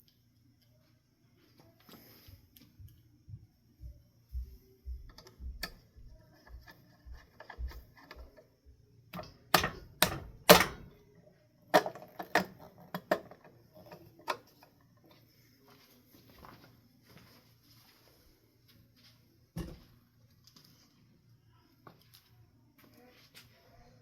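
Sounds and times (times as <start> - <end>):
soft low thumps: 3.2 - 6.2
clicks of fan parts handled: 9.2 - 11.0.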